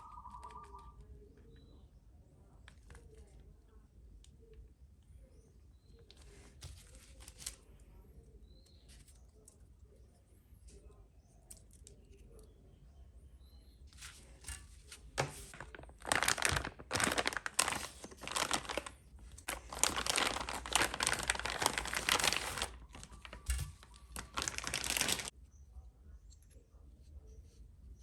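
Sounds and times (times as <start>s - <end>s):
plastic bag crinkling: 14.0s - 25.4s.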